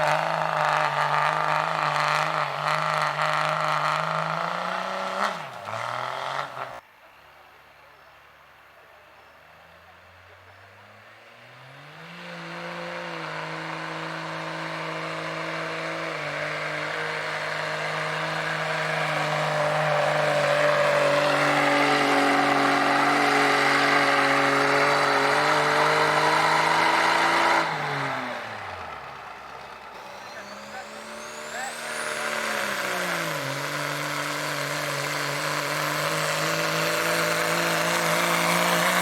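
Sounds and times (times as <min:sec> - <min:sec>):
diesel truck engine revving: 0:00.0 - 0:06.8, 0:09.5 - 0:39.0.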